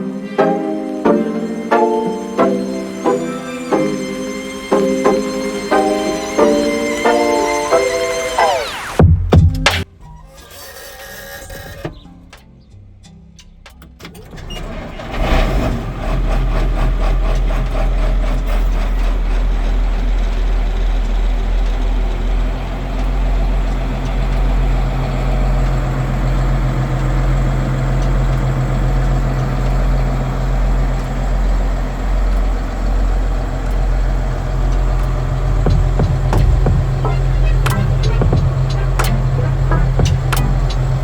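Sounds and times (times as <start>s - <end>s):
diesel tractor engine idling: 15.8s - 41.0s.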